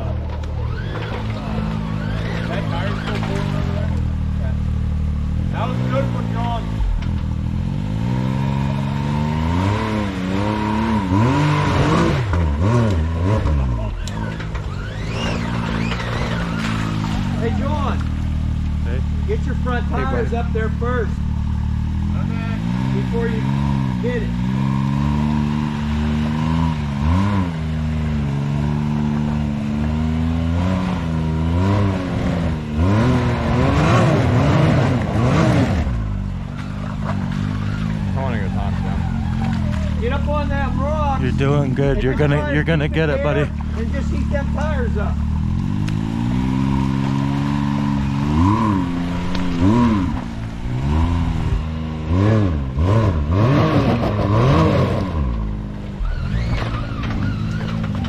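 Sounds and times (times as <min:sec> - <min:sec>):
engine running and revving: 0:00.0 - 0:58.0.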